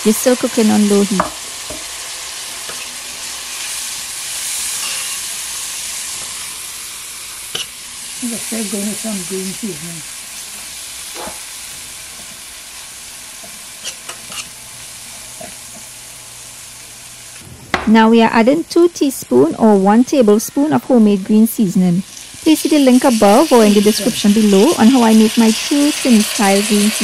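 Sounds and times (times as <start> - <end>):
onions sizzling in oil: 0.0 - 27.0
person's voice: 8.2 - 10.1, 17.9 - 27.0.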